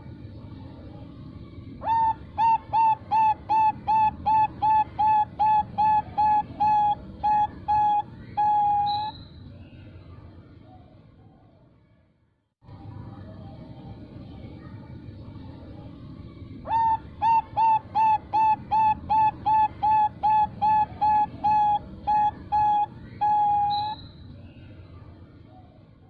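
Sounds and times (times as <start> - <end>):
dove cooing: 1.8 - 9.1, 16.7 - 24.0.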